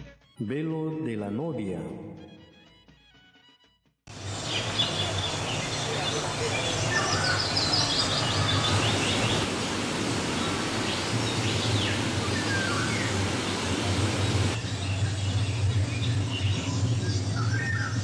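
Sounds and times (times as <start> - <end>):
small birds chirping: 4.1 - 18.0.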